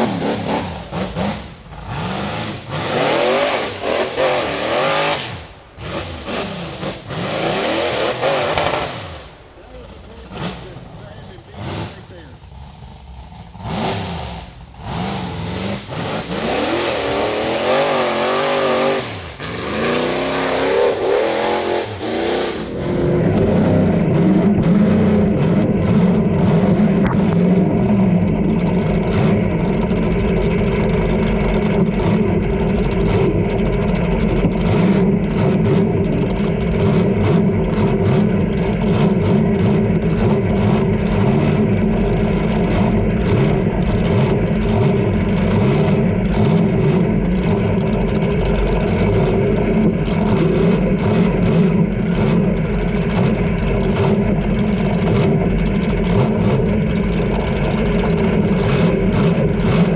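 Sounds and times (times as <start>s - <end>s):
buggy engine revving: 0.0s - 59.9s.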